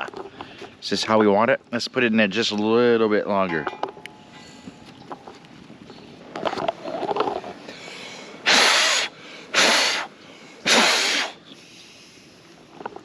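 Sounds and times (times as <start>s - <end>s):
short puffs of breath: 7.6s - 12.4s.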